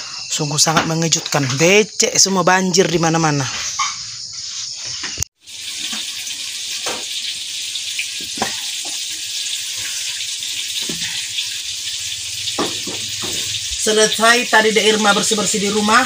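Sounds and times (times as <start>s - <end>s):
eggplant sizzling in hot oil: 5.4s - 16.0s
oil popping and crackling: 5.4s - 16.0s.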